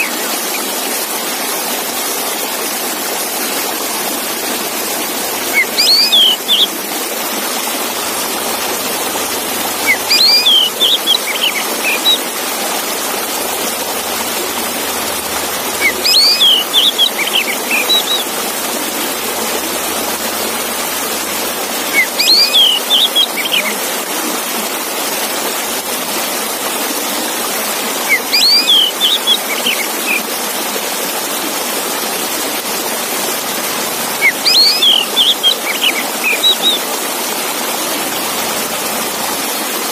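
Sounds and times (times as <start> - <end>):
rushing water-like noise: 0.0 - 39.9
songbird whistling: 5.4 - 6.7, 8.3 - 12.2, 13.8 - 18.4, 20.4 - 23.7, 28.1 - 30.2, 34.1 - 36.8.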